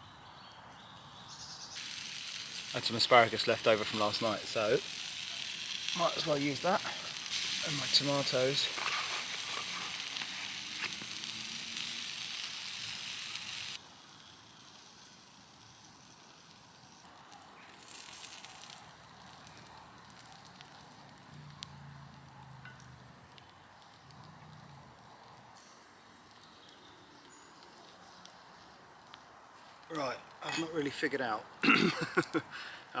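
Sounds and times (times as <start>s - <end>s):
food sizzling in a frying pan: 1.7s - 21.9s.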